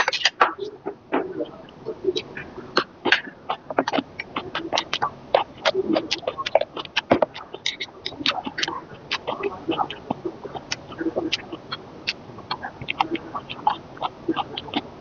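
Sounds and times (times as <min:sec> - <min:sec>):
person chewing noodles: 0:01.7 - 0:15.0.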